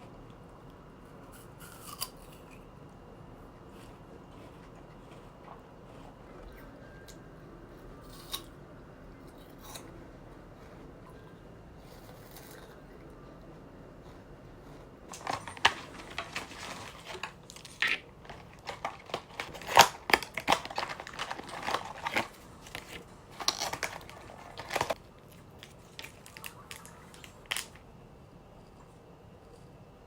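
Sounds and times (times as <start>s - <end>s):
packaging crinkling and tearing: 15.1s - 27.8s.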